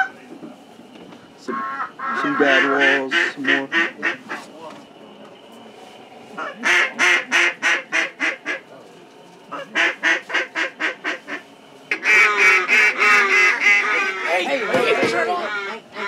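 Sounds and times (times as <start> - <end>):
duck call quacking: 1.5 - 4.4, 6.4 - 8.6, 9.5 - 15.8.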